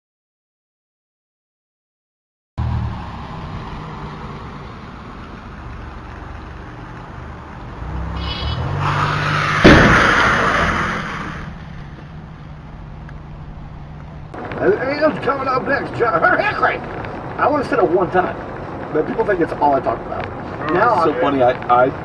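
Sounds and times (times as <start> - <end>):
rush of noise: 2.6 - 22.0
vehicle humming: 2.6 - 22.0
loud car crash: 8.2 - 12.2.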